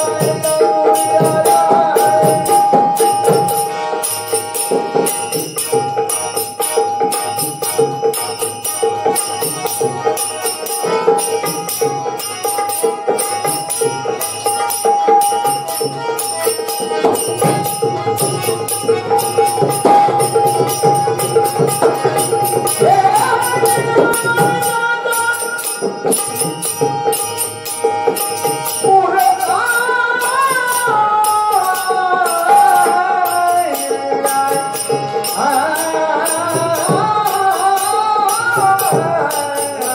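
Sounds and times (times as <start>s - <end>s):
jingling percussion: 0.0s - 39.9s.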